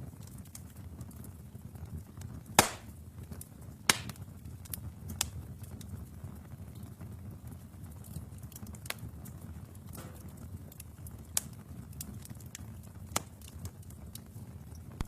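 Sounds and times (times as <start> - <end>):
fire crackles and pops: 0.0 - 15.0
low rumble of flames: 0.0 - 15.0.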